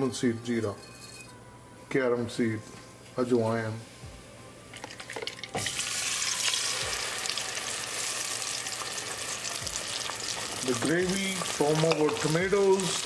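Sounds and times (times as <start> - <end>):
paste sizzling in hot oil: 5.6 - 13.0
seeds ticking in hot oil: 6.4 - 13.0.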